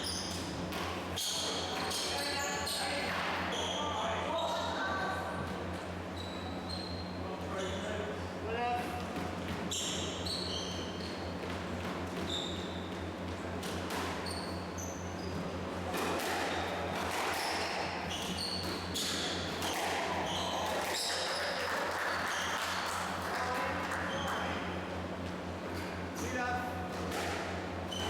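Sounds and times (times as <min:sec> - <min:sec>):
shoes squeaking on court floor: 0:00.0 - 0:08.0, 0:08.9 - 0:24.8, 0:25.6 - 0:28.0.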